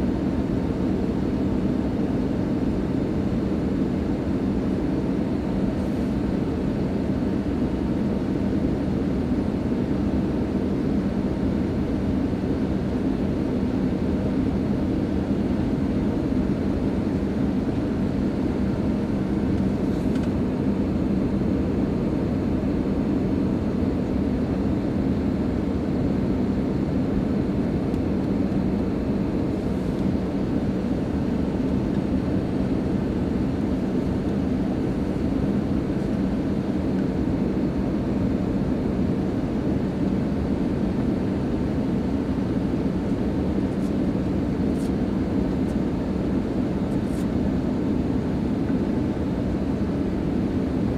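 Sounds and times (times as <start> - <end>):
airplane cabin engine rush: 0.0 - 50.9.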